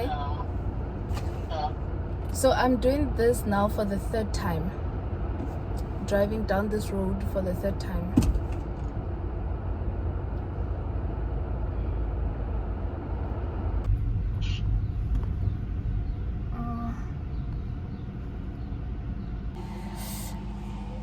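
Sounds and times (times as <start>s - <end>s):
car road and engine rumble: 0.0s - 21.0s
short tone: 19.6s - 21.0s.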